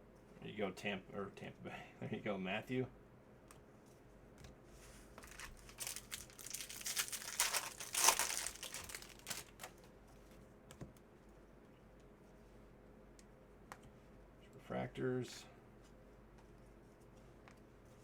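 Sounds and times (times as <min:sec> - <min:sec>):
wrapper crinkling and tearing: 0:05.2 - 0:09.8.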